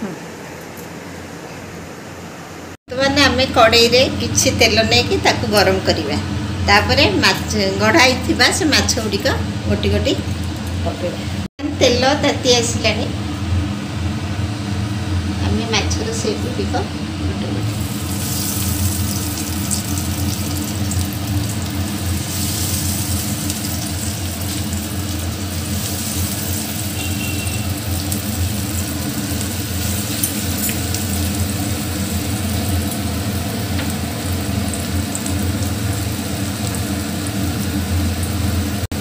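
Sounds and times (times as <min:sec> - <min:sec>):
patties sizzling in hot oil: 0:17.7 - 0:39.0.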